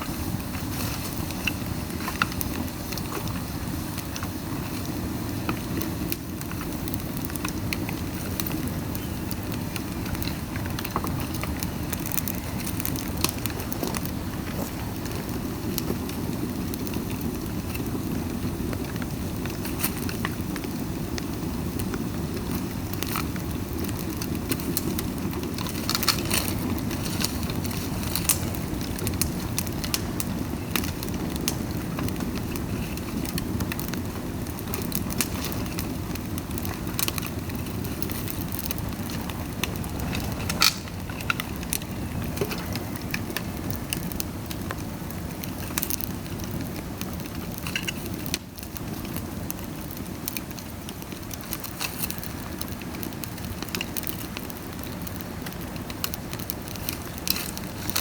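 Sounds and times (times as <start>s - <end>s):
bamboo bonfire crackling: 0.0s - 58.0s.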